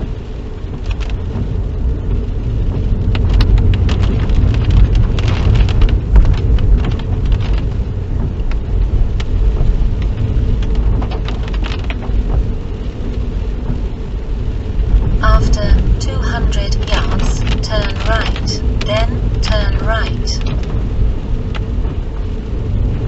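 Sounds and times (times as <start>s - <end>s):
raindrops ticking on car: 0.0s - 23.0s
road and engine rumble: 0.0s - 23.0s.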